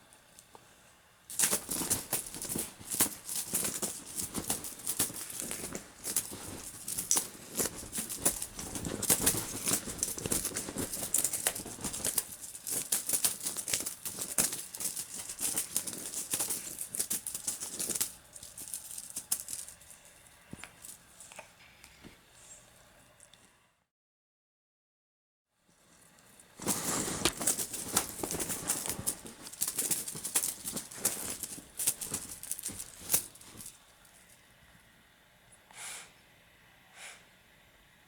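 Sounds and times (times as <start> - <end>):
cat toy rustling and rattling: 1.3 - 22.2, 25.8 - 34.5
cat huffing through nose: 35.7 - 36.2.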